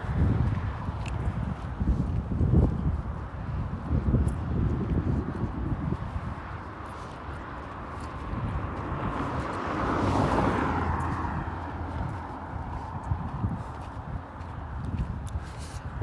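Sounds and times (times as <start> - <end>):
low traffic rumble: 0.0 - 16.0
vehicle passing by: 6.9 - 13.7.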